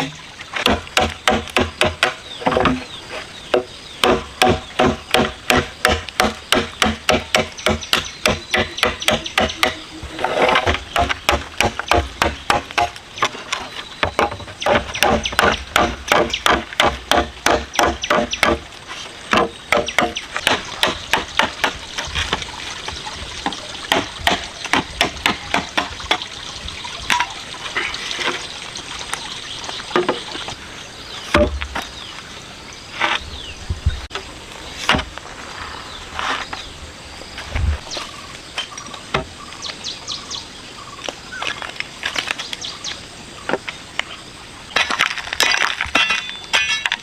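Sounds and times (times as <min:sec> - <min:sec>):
ringing chopping strokes: 0:03.5 - 0:13.0, 0:14.0 - 0:18.7.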